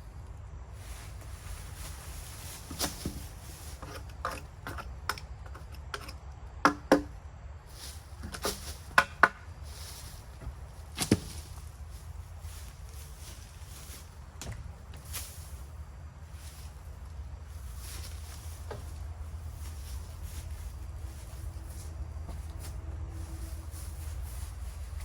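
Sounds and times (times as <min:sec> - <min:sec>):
low steady rumble: 0:00.0 - 0:25.0
wood knocking and cracking: 0:06.6 - 0:07.2, 0:08.2 - 0:09.5, 0:10.4 - 0:11.6.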